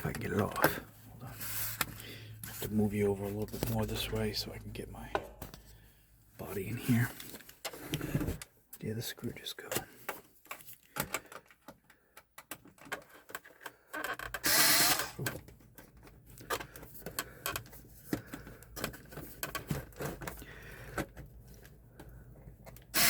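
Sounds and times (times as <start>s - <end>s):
power screwdriver running: 14.4s - 15.2s.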